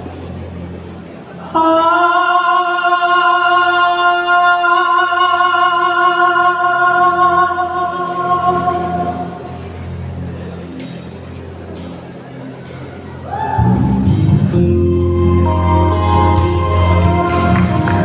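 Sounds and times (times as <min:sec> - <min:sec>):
singer holding long note: 0:01.3 - 0:10.1, 0:13.0 - 0:18.0
backing music: 0:06.4 - 0:18.0.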